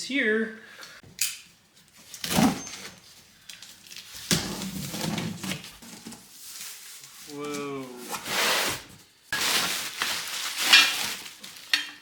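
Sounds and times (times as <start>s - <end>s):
box scraping and rattling: 4.4s - 6.3s.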